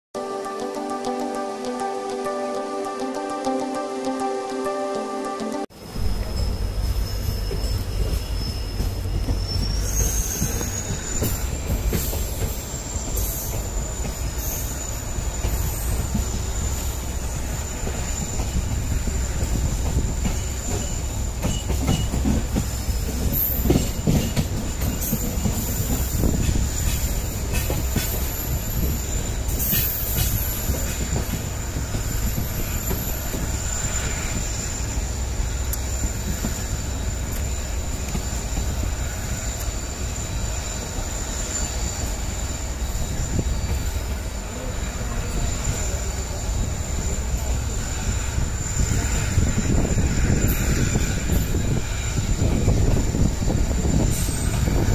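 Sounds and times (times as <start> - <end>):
wheels rumbling on rail: 5.7 - 54.9.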